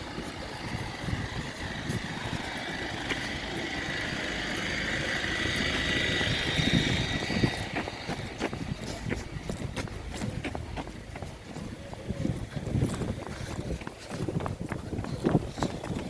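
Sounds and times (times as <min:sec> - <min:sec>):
diesel train whine and rumble: 0:00.0 - 0:10.0.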